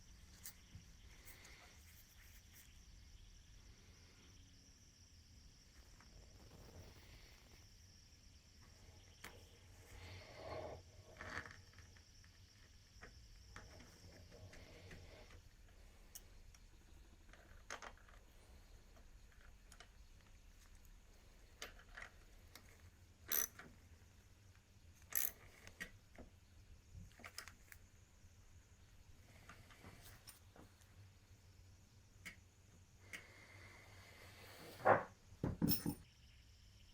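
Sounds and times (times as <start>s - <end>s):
metallic clicks of tools: 23.3s - 23.7s, 25.0s - 25.8s.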